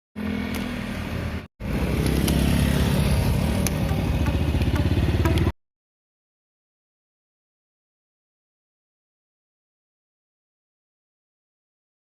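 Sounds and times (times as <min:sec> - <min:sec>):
engine running with low pulsing: 0:00.2 - 0:05.5.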